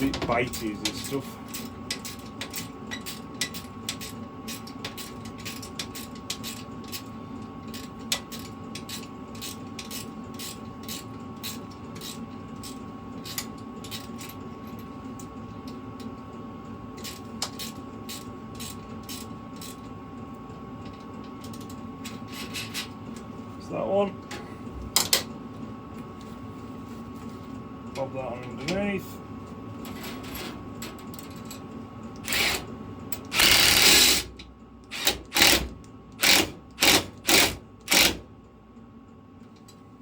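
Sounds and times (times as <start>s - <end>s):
steady background hum: 0.0s - 40.0s.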